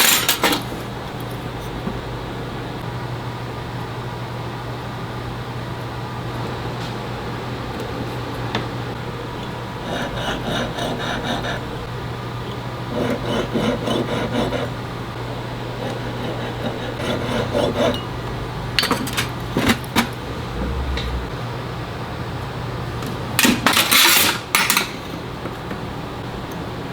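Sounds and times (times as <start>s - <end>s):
steady low hum: 8.9s - 23.4s
hand file scraping metal: 9.8s - 11.7s, 12.9s - 14.8s, 15.8s - 18.1s, 18.8s - 21.2s.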